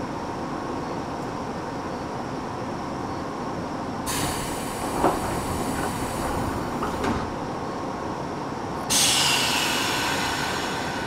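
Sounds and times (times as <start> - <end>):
train equipment hum: 0.0 - 11.0
compressed air hiss: 4.1 - 7.0, 8.9 - 11.0.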